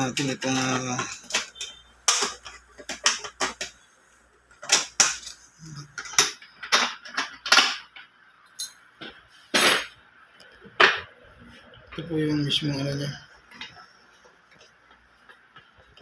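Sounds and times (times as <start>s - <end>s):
hand tools clicking on parts: 0.0s - 3.8s.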